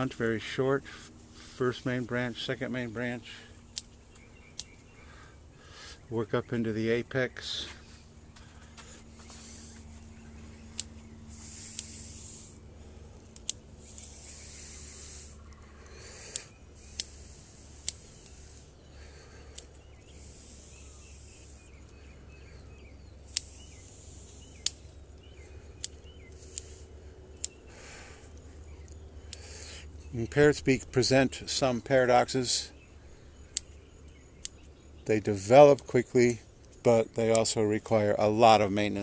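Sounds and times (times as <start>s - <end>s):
foliage rustling: 7.5s - 29.8s
scissors snipping: 10.7s - 12.2s, 23.3s - 25.0s, 25.7s - 26.8s.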